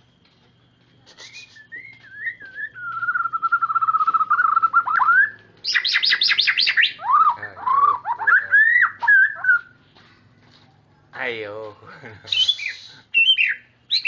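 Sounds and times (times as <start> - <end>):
bird singing warbling whistles: 1.0 - 9.7, 12.3 - 14.0.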